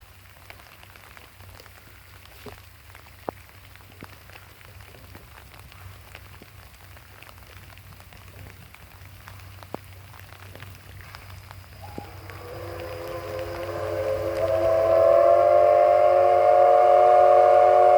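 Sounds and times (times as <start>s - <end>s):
steady low hum: 10.7s - 17.9s
steam locomotive whistle: 11.8s - 17.9s.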